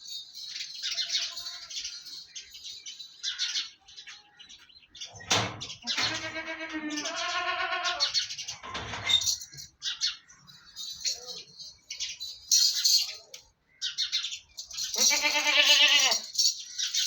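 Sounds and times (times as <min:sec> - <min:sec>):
small birds chirping: 0:00.0 - 0:17.0
goat bleating: 0:05.8 - 0:08.2, 0:15.0 - 0:16.3.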